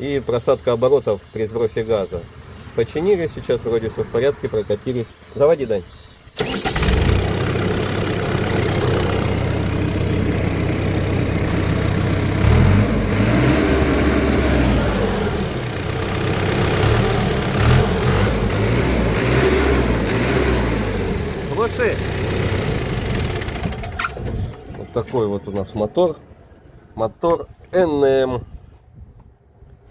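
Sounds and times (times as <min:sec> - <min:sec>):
diesel engine starting and idling: 0:01.6 - 0:28.4.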